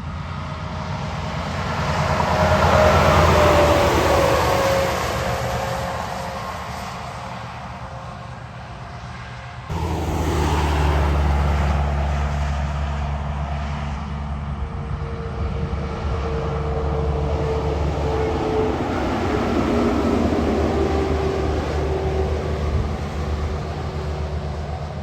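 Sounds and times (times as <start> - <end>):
diesel truck engine droning: 9.7 - 25.0.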